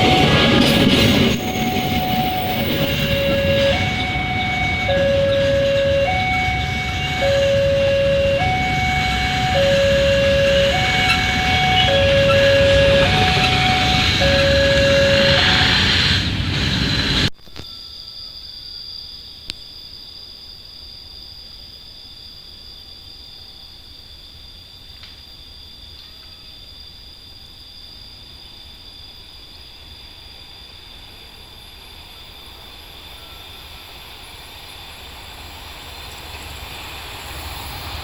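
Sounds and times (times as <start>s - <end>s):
two-note warning tone: 0.0s - 17.2s, 31.5s - 38.0s
train rumbling past: 0.0s - 17.3s, 28.6s - 38.0s
faint steady high whine: 0.0s - 18.8s, 28.0s - 38.0s.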